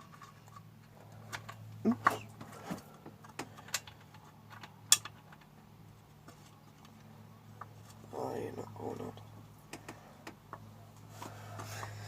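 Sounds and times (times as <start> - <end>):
small metallic clicks and taps: 3.0 - 7.9.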